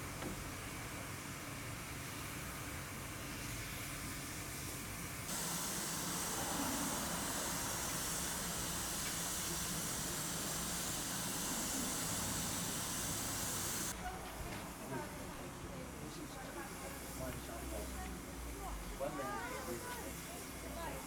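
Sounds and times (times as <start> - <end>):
steam hissing: 0.0 - 14.0.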